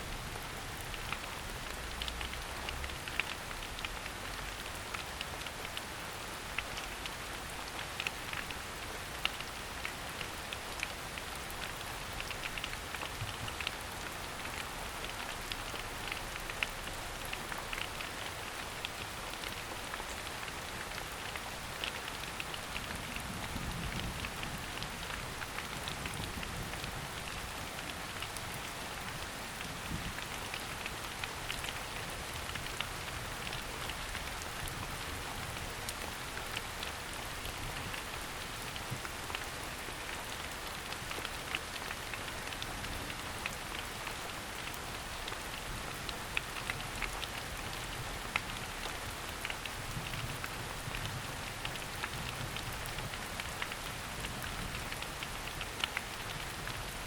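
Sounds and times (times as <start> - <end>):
rain on foliage: 0.0 - 57.0.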